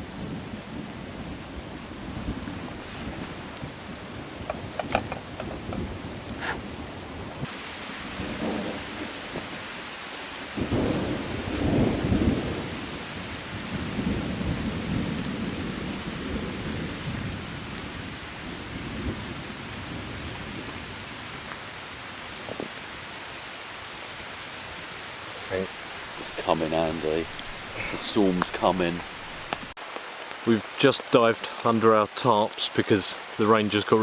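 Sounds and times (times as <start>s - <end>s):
heavy rain falling: 0.0s - 34.0s
deep roll of thunder: 8.1s - 9.6s, 10.5s - 20.8s.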